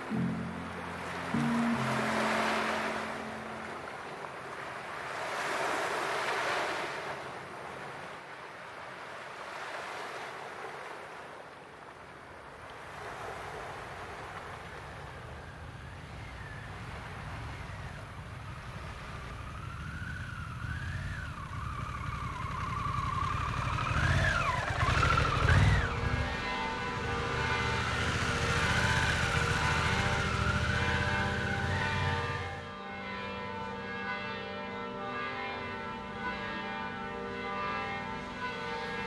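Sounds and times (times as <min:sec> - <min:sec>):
wavering siren-like wail: 0:00.0 - 0:05.5, 0:14.8 - 0:39.0
motorcycle engine rumbling: 0:17.8 - 0:32.8.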